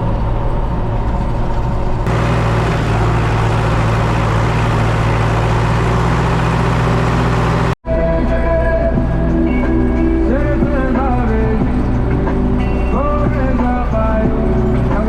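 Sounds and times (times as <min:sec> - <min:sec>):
tractor engine running: 0:00.1 - 0:07.8.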